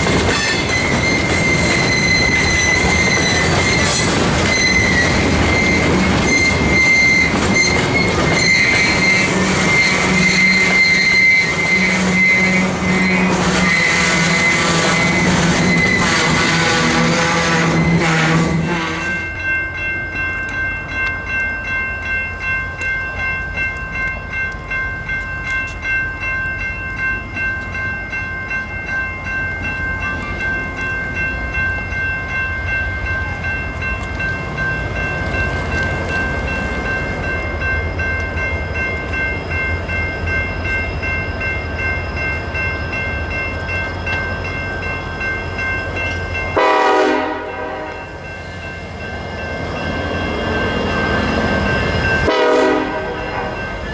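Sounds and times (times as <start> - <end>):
train rumbling past: 0.0 - 53.9
train horn blast: 8.4 - 19.3, 46.6 - 48.1, 52.2 - 53.6
steady high-pitched tones: 19.1 - 53.9.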